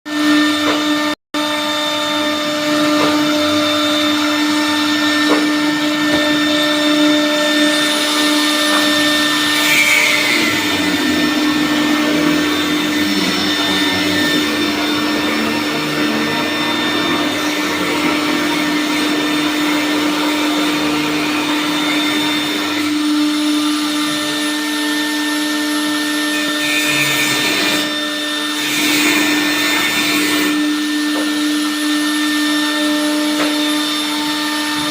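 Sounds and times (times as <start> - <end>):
cutting machine motor whine: 0.1 - 28.6
hissing of metal cutting: 0.2 - 23.1.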